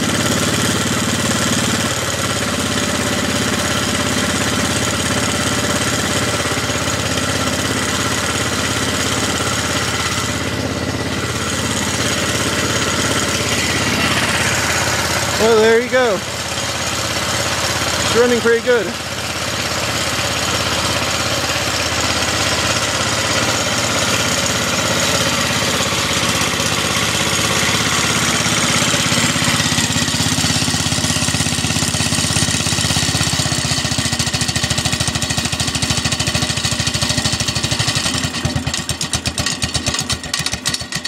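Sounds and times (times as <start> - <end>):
garden tractor engine running: 0.0 - 41.0.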